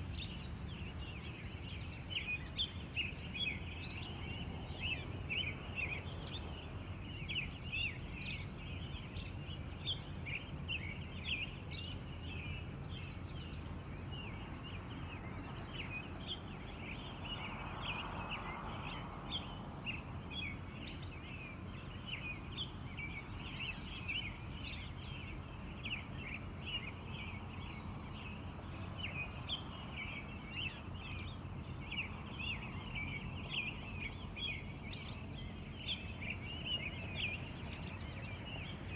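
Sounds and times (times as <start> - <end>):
insect hum: 0.0 - 38.9
birds chirping: 20.5 - 38.9.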